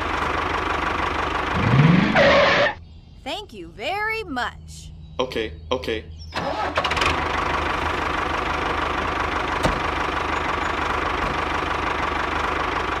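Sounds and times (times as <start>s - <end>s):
diesel engine chugging: 0.0s - 2.8s, 6.1s - 13.0s.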